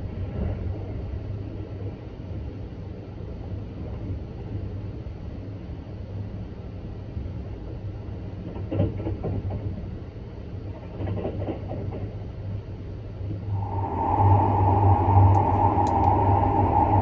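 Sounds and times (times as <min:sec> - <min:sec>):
train low rumble: 0:00.0 - 0:17.0
wheels clickety-clack over rail joints: 0:07.6 - 0:12.7.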